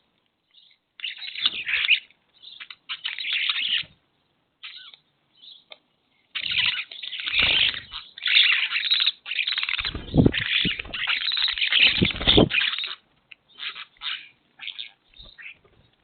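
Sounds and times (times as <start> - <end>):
birds calling and chattering: 0.4 - 16.0
low thumps: 9.8 - 11.1.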